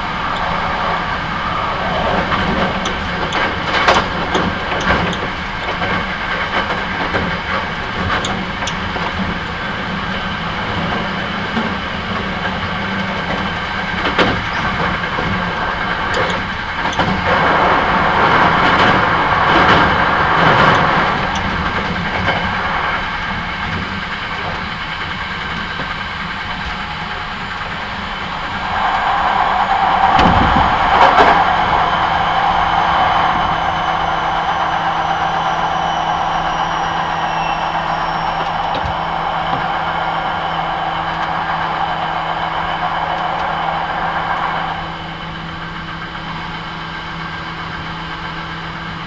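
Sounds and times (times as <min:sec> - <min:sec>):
loud rush of air: 0:00.0 - 0:04.8, 0:28.1 - 0:46.0
train wheels rumbling on rail: 0:00.0 - 0:49.0.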